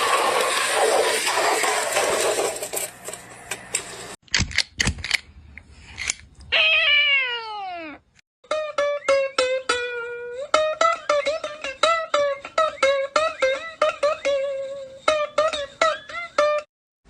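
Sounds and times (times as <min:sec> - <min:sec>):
plucked string instrument melody: 0:08.4 - 0:16.7.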